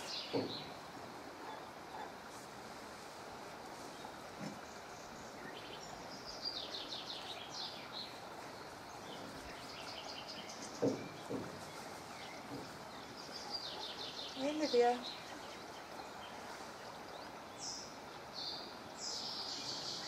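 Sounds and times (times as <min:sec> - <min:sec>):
outdoor background noise: 0:00.0 - 0:20.0
small birds twittering: 0:00.0 - 0:20.0
short knocks: 0:00.2 - 0:00.9, 0:10.6 - 0:12.9.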